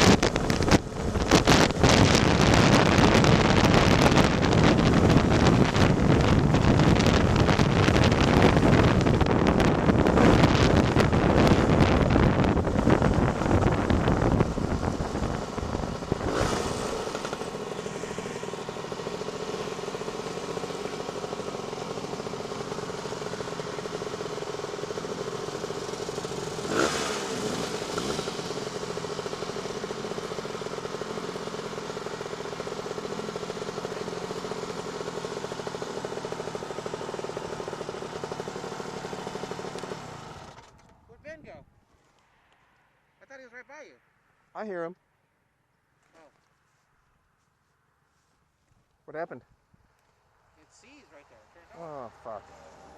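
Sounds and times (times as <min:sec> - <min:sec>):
wind noise: 0:00.0 - 0:17.0
scooter engine running: 0:00.0 - 0:41.1, 0:50.8 - 0:52.9.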